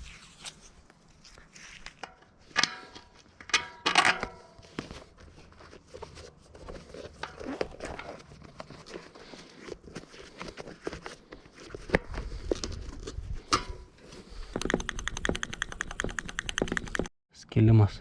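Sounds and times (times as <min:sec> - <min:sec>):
clicks and rustling of bicycle parts: 0:01.8 - 0:05.0.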